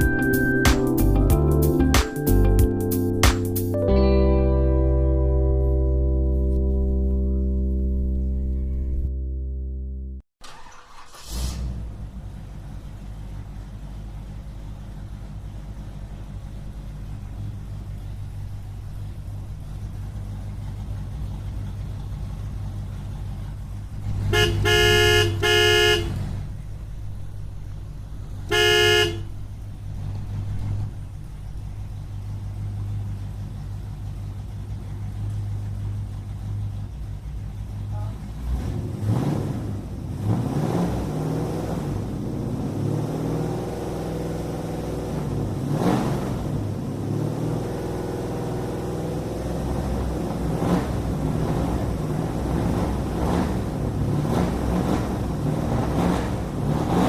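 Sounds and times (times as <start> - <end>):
low engine rumble: 0.0 - 57.0
vehicle horn honking: 24.2 - 26.2, 28.5 - 29.4.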